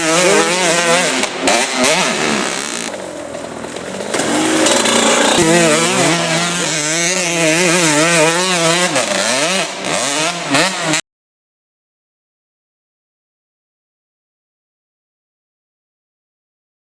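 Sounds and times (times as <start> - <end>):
dirt bike engine running hard: 0.0 - 11.0.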